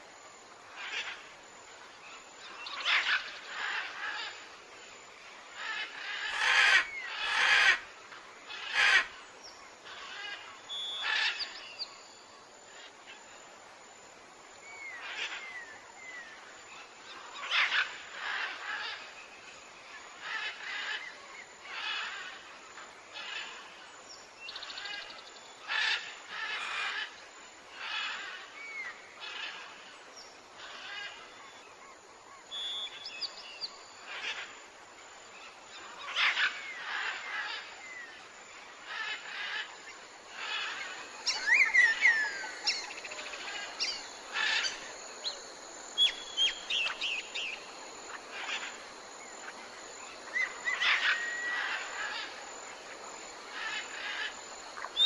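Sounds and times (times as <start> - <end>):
birds calling: 38.9 - 52.4.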